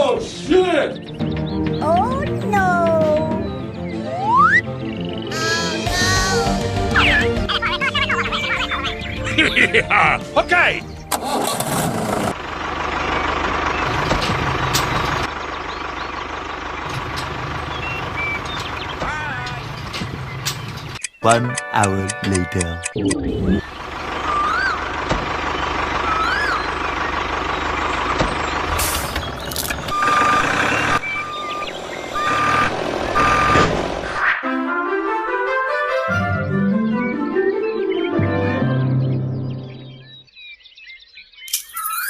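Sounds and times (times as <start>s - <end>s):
tractor engine idling: 5.4s - 21.0s, 23.6s - 34.2s
reversing alarm beeping: 29.8s - 33.7s.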